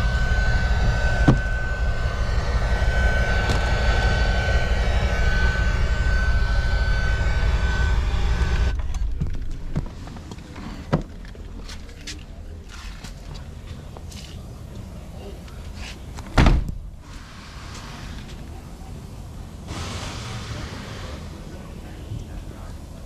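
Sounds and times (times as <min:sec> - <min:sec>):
thin high whine: 0:00.0 - 0:10.8
car engine running: 0:00.0 - 0:12.0.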